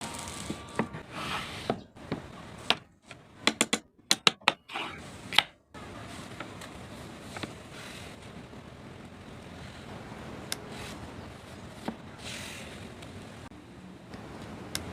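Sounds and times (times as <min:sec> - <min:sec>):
tools tapping and knocking: 0:01.7 - 0:04.7.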